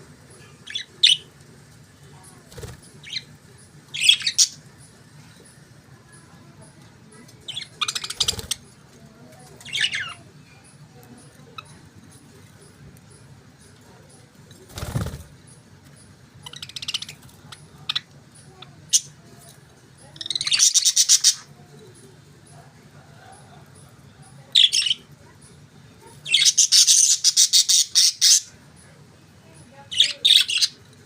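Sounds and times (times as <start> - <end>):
budgerigars chirping: 26.3 - 28.4.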